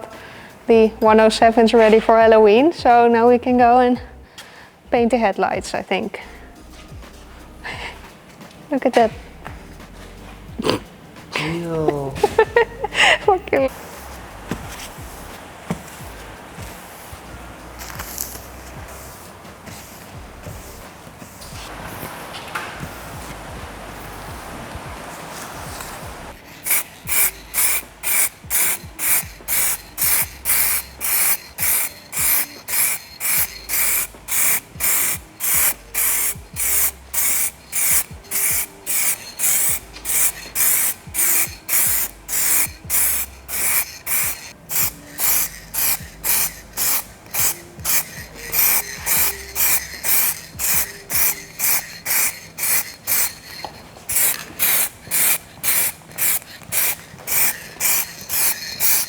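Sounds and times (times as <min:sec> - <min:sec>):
aerosol spray can hissing: 0:12.2 - 0:59.0.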